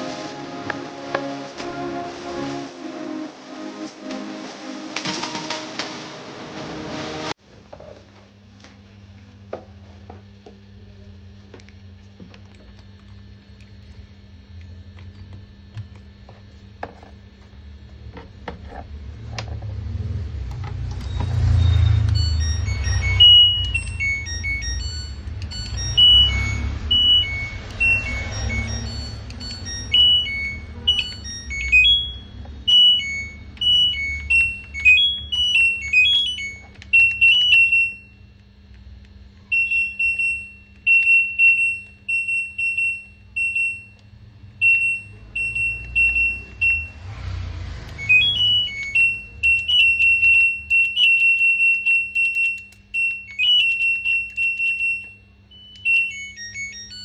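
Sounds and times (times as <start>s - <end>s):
steady low hum: 0.0s - 57.0s
melodic high beeps: 21.0s - 38.1s, 39.5s - 44.0s, 44.6s - 47.1s, 47.8s - 57.0s
single electronic beeps: 21.0s - 38.1s, 44.6s - 47.1s, 47.9s - 57.0s.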